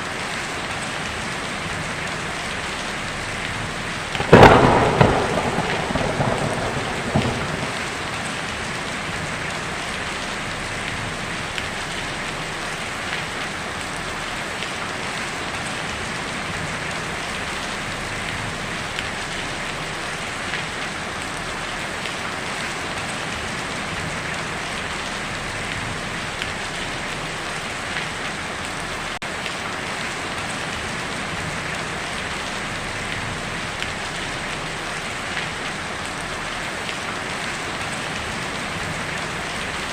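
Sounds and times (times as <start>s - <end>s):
heavy rain on a tin roof: 0.0s - 39.9s
thunder rumbling: 3.2s - 11.8s.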